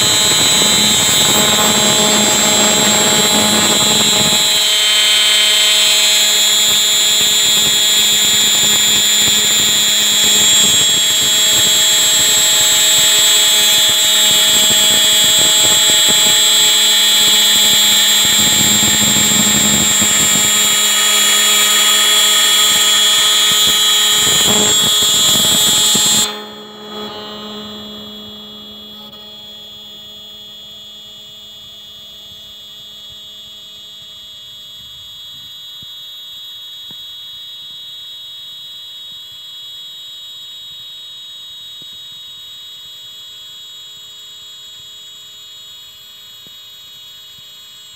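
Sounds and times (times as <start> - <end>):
milling spindle whining: 0.0 - 30.8
machine hum: 0.0 - 33.2.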